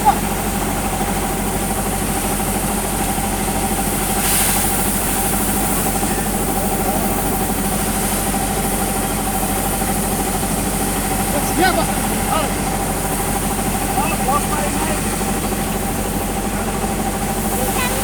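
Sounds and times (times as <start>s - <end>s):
diesel engine running: 0.0s - 18.0s
rush of hiss: 3.5s - 16.2s.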